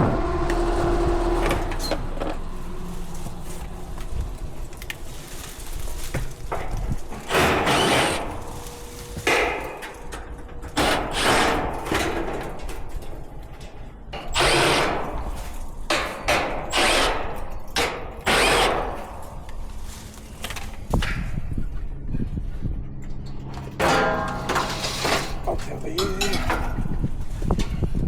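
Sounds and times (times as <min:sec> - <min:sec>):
power drill bursts: 0:07.3 - 0:08.6, 0:10.8 - 0:12.0, 0:14.3 - 0:15.6, 0:16.6 - 0:17.5, 0:18.2 - 0:19.2.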